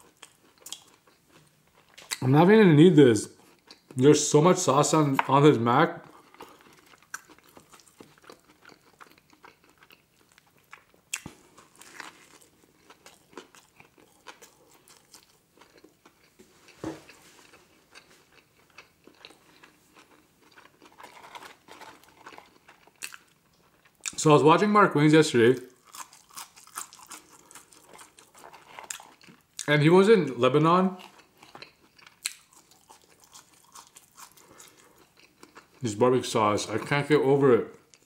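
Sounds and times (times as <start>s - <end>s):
man chewing with wet mouth sounds: 0.0s - 2.2s, 3.4s - 4.0s, 6.0s - 24.2s, 25.7s - 29.7s, 31.0s - 35.9s.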